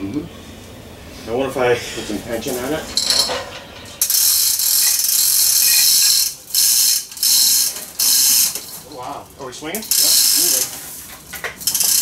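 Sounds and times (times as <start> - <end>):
ratchet hoist clattering: 4.0 - 8.8, 9.8 - 12.0.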